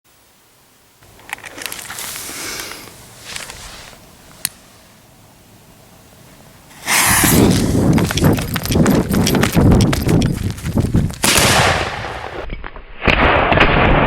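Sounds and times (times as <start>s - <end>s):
short hisses: 2.0s - 4.0s, 6.7s - 7.8s
firework shell blast and crackles: 6.7s - 8.4s, 11.1s - 14.0s.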